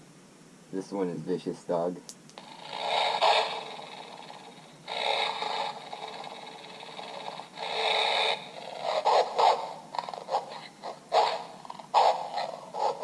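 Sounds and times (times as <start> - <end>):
recorded dog snarling and growling: 2.4 - 13.0.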